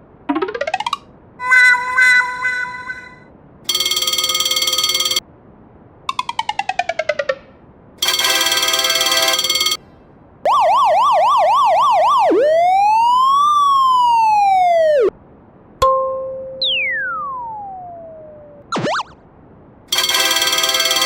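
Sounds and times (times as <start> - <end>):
steady electronic beep: 3.7 - 5.2, 8.0 - 9.8, 19.9 - 21.0
police siren yelping and wailing: 10.5 - 15.1.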